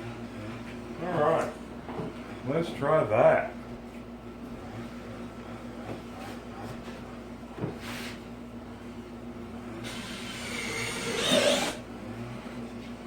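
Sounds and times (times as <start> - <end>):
power drill driving screw into wood: 9.8 - 11.8.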